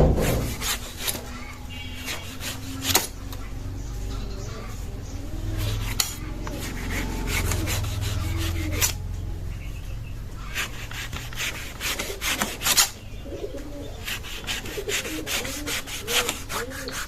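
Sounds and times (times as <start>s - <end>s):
blade cutting through fruit: 0.0s - 3.2s, 5.6s - 9.1s, 10.4s - 13.0s, 14.0s - 17.0s
birds calling: 0.0s - 17.0s.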